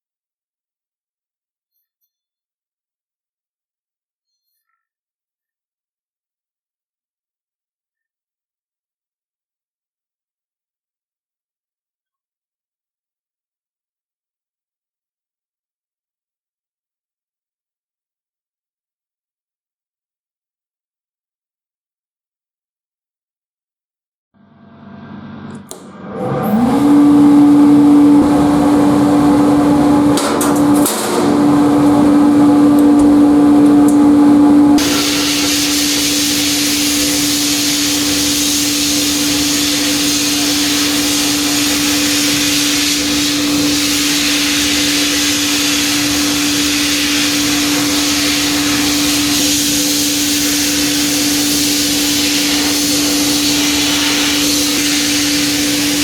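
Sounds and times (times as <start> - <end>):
electric hum: 24.4 - 56.0
sandblasting air hiss: 29.1 - 56.0.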